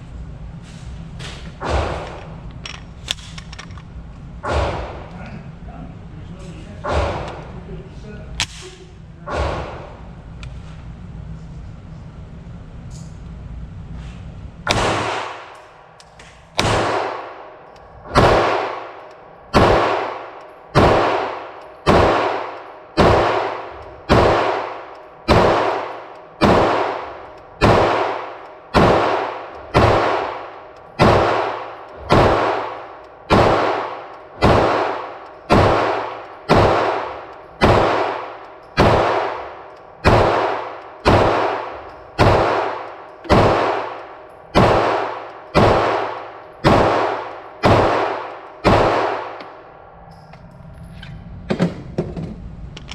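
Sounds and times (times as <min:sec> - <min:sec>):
pistol shots: 0:14.7 - 0:49.6.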